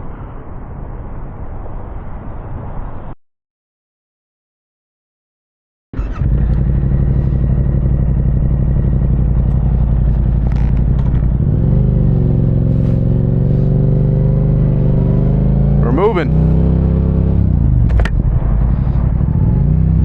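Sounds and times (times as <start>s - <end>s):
motorcycle engine idling: 6.0s - 13.8s.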